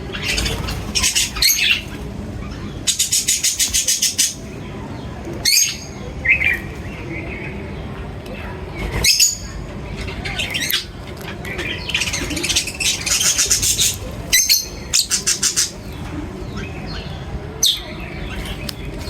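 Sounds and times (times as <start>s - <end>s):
birds chirping and squawking: 0.0s - 19.0s.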